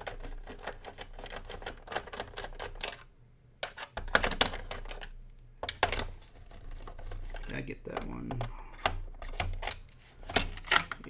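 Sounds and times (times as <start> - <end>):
sharp plastic clacks: 0.0 - 11.0
small clicks and taps: 3.6 - 11.0.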